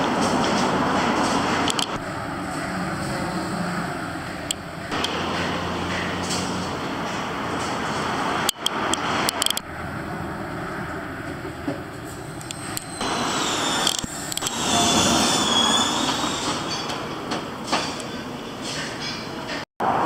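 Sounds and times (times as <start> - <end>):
train running by: 0.0 - 20.0
wheel squeal: 12.0 - 19.6.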